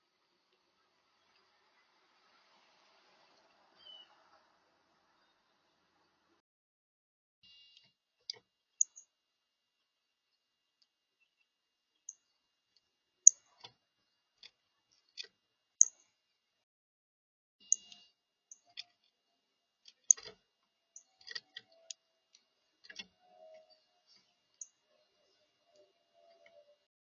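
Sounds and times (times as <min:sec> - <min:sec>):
birds ticking and clicking: 0:08.8 - 0:09.0, 0:15.8 - 0:16.0, 0:20.1 - 0:20.4.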